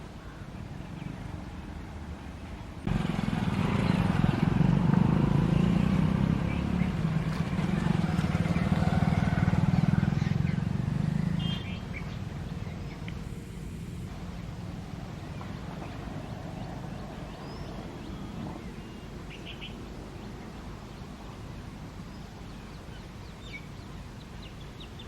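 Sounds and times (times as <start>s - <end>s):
vehicle engine running: 2.8s - 18.1s.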